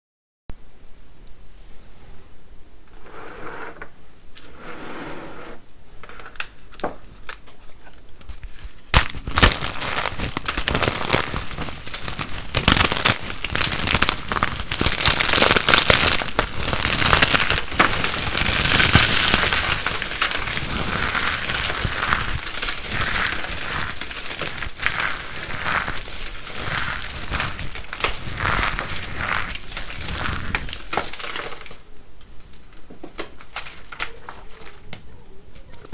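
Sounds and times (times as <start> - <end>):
dry soap crunching: 7.2 - 35.9.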